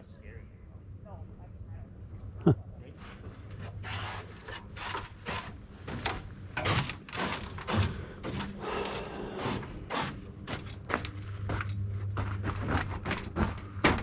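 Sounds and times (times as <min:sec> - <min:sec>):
footsteps on a trail: 0:08.0 - 0:14.0.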